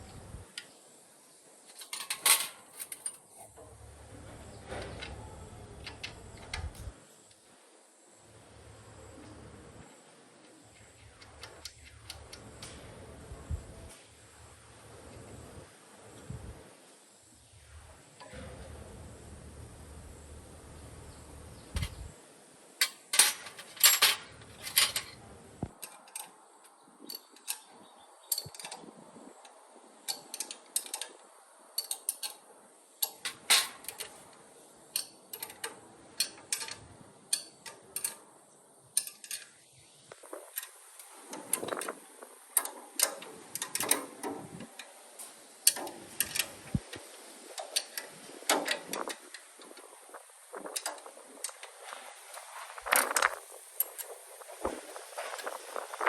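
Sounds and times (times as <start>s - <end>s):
metal parts and hand tools clinking: 1.7s - 3.7s, 22.8s - 25.2s, 25.8s - 31.2s, 31.8s - 38.3s, 39.0s - 42.0s, 42.6s - 56.0s.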